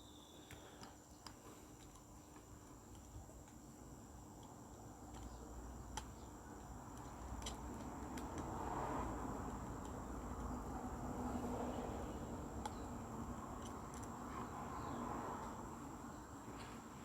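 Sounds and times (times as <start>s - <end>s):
small clicks: 4.4s - 8.6s.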